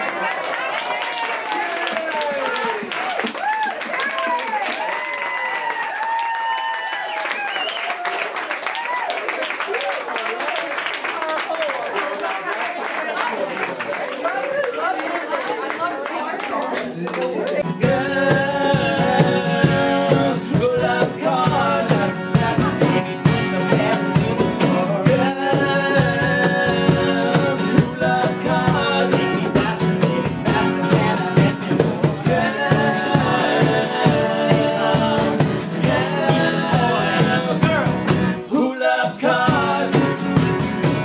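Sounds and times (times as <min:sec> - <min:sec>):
drum beat: 0:17.6 - 0:38.4, 0:39.3 - 0:41.0
live rock band playing: 0:17.6 - 0:38.5, 0:39.4 - 0:41.0
person singing: 0:17.6 - 0:41.0.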